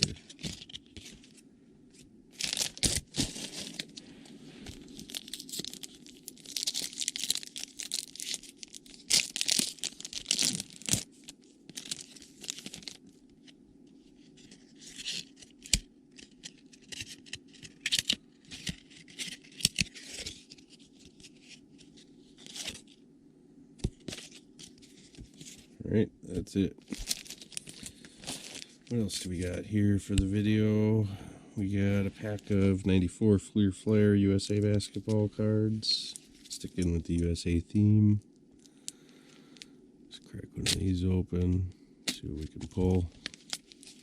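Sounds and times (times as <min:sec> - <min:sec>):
faint steady hum: 0:00.0 - 0:44.0
wrapper tearing and crinkling: 0:02.3 - 0:04.0, 0:04.8 - 0:13.2, 0:26.9 - 0:29.2, 0:42.7 - 0:44.0.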